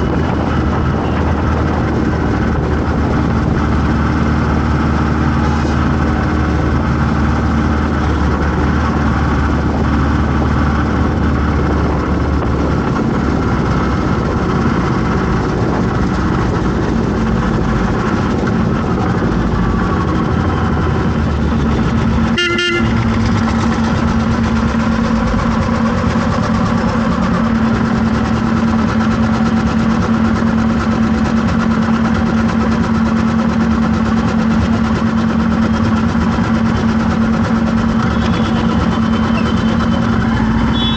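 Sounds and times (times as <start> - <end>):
vehicle engines running: 0.0 - 40.9
car horns honking: 22.2 - 23.1, 38.0 - 40.9.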